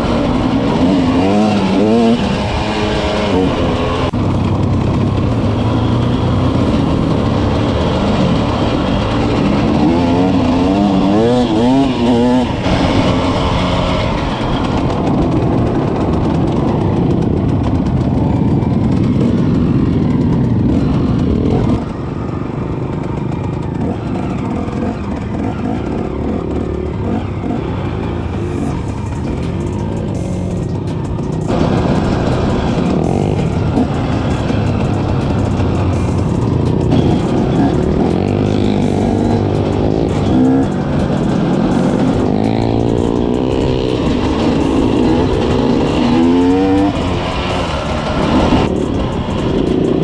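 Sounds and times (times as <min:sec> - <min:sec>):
off-road engines revving: 0:00.0 - 0:50.0
music playing: 0:28.2 - 0:50.0.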